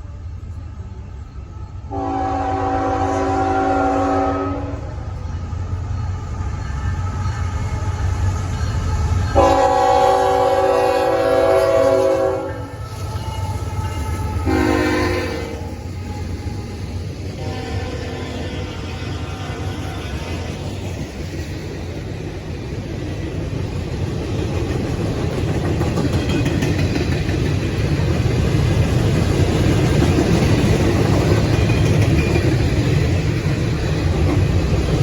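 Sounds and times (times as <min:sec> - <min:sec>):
train rumble: 0:00.0 - 0:35.0
locomotive horn blasts: 0:01.9 - 0:05.1, 0:09.4 - 0:15.7, 0:17.3 - 0:20.5.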